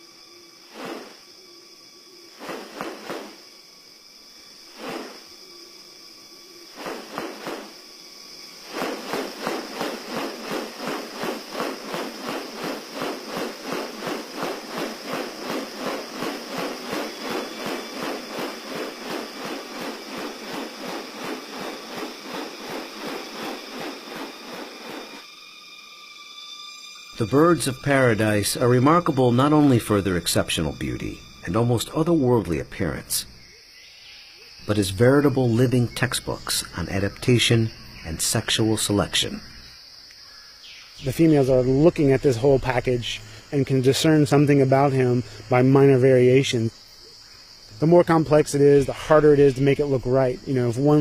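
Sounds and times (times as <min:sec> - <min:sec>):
high insect drone: 0:00.0 - 0:51.0.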